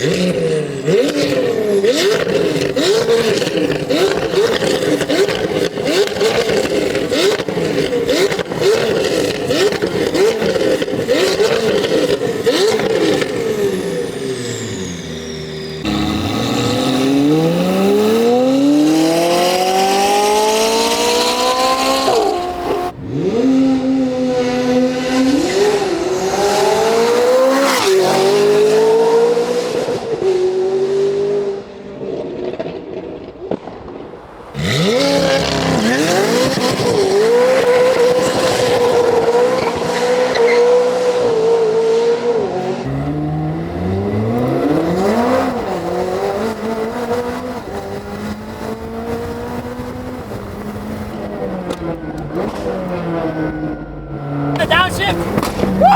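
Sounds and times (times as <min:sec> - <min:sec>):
sports car engine revving: 0:00.0 - 0:55.9
tyres squealing: 0:54.6 - 0:55.9.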